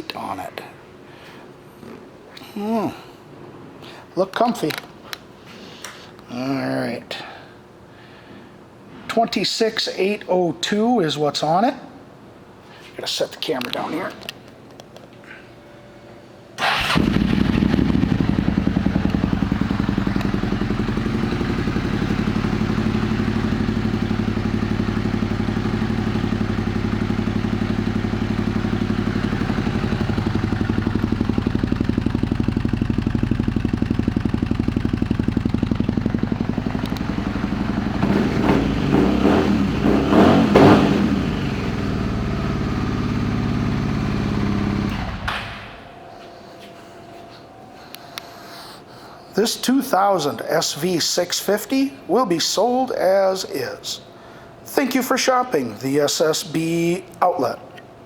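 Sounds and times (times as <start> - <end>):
motorcycle engine idling and revving: 16.7 - 45.6.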